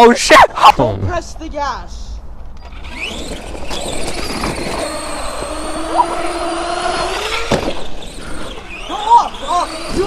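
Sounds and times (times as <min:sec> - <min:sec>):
electric motor whining: 0:02.6 - 0:10.0.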